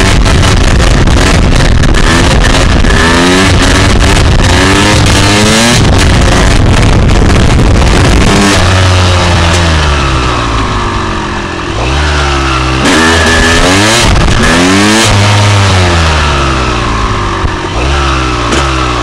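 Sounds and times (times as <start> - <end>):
wind rushing over microphone: 0.0 - 17.9
two-stroke motorcycle engine revving: 0.0 - 19.0.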